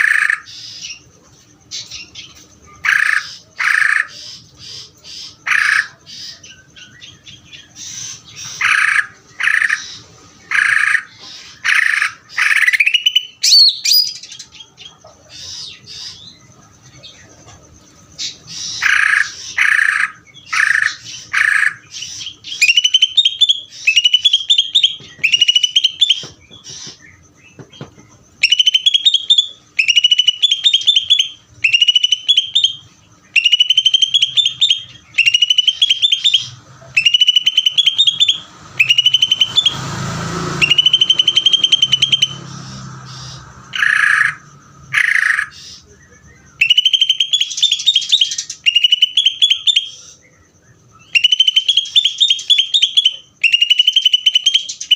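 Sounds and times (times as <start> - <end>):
bird singing with trills: 0.0 - 54.9
rushing noise: 38.4 - 45.0.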